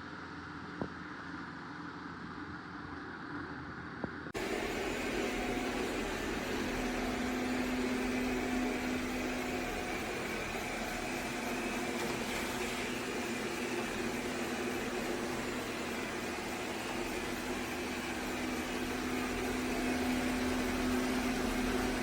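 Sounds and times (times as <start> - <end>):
robot vacuum whirring: 4.4 - 22.0.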